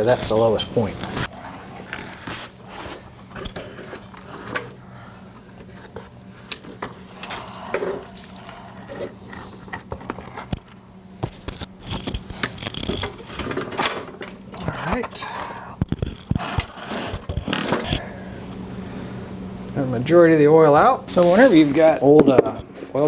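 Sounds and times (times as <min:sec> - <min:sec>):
push mower clanking and scraping: 0:00.0 - 0:04.8, 0:11.9 - 0:15.5
steady low hum: 0:00.0 - 0:23.0.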